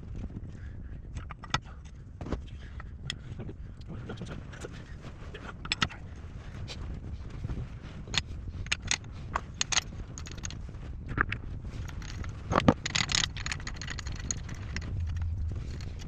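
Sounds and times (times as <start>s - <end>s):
metal tools clinking and scraping: 11.7s - 16.0s.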